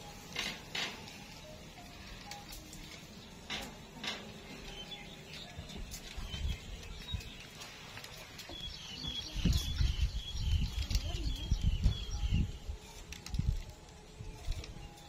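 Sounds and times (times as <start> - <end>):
bird chirping: 1.2 - 12.7.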